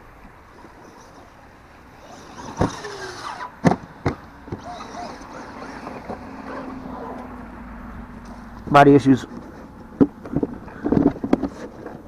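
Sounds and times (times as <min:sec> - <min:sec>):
electric motor whining: 0:00.5 - 0:08.6.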